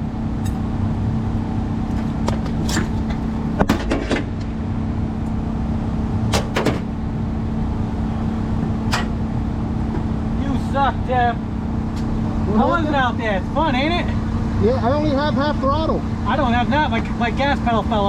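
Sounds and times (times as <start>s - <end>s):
engine idling: 0.0s - 18.0s
sharp clicks and clunks: 8.9s - 9.2s.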